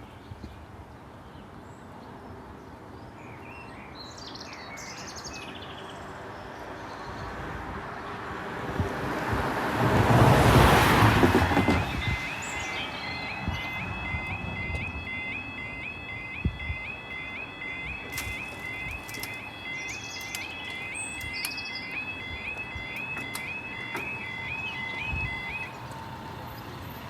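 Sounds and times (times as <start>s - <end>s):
road vehicle passing: 7.0s - 27.0s
birds chirping: 11.5s - 27.0s.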